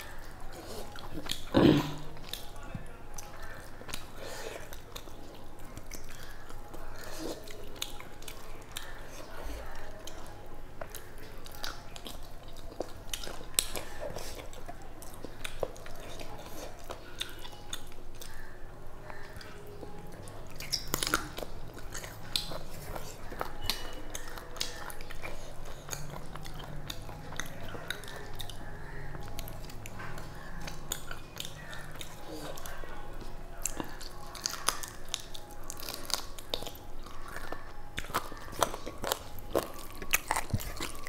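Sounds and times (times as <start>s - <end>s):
wet chewing and mouth clicks: 0.0s - 41.0s.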